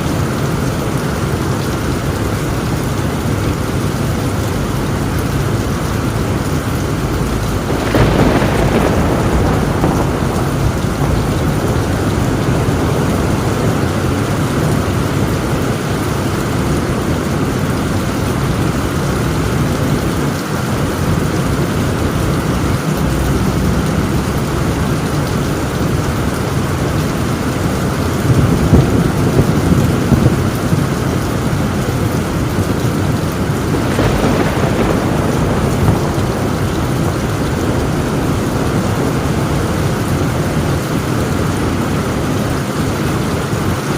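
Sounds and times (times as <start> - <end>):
low rolling thunder: 0.0 - 43.9
rain drumming on a tin roof: 0.0 - 43.9.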